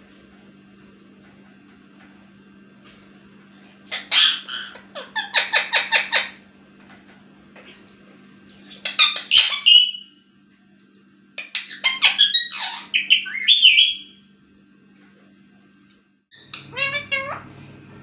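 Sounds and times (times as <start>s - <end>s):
parrot chattering: 3.9s - 6.4s, 8.5s - 10.0s, 11.4s - 14.1s, 16.4s - 17.5s.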